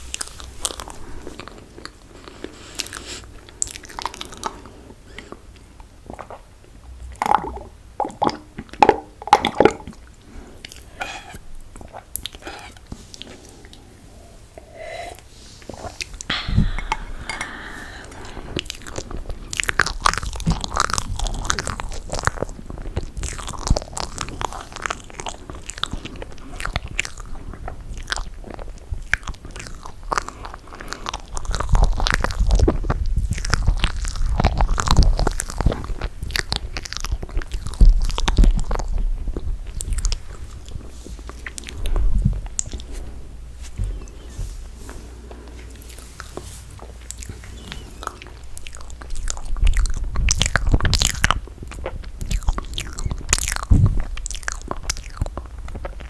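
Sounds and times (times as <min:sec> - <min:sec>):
sticky wet chewing: 0:00.1 - 0:06.5, 0:08.1 - 0:13.9, 0:18.1 - 0:56.0
mouth clicks: 0:46.9 - 0:56.0.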